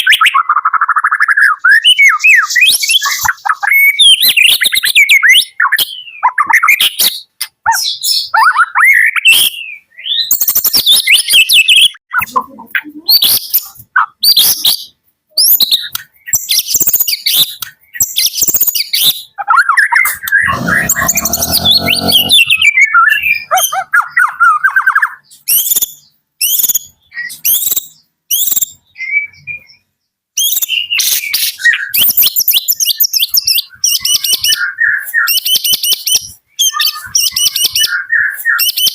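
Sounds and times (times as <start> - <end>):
songbird singing chirps and whistles: 23.4 - 38.9.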